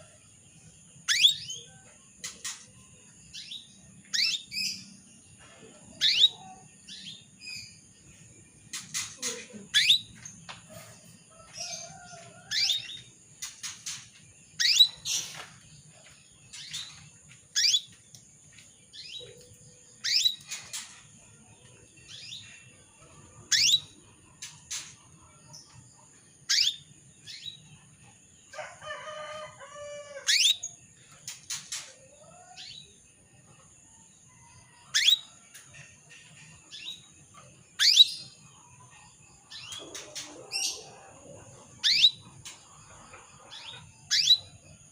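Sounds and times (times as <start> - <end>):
canary chirping: 1.0 - 2.7, 3.3 - 5.0, 6.0 - 8.0, 8.7 - 10.4, 11.6 - 18.0, 18.9 - 21.0, 23.4 - 24.8, 26.4 - 27.7, 30.2 - 30.8, 34.9 - 35.3, 36.6 - 38.9, 41.8 - 42.6, 43.3 - 44.7.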